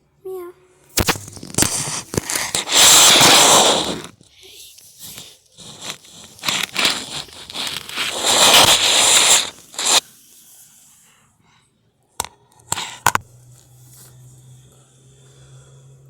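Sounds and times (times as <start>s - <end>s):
rustling and scraping: 1.0s - 10.2s.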